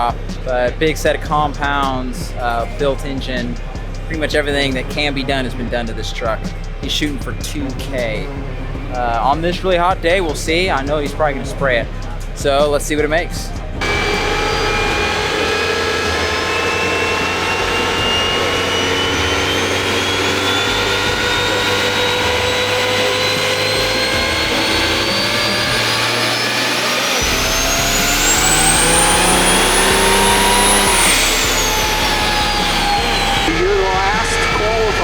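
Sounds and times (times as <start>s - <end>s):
engine at full power: 0.0s - 35.0s
high turbo whistle: 13.8s - 35.0s.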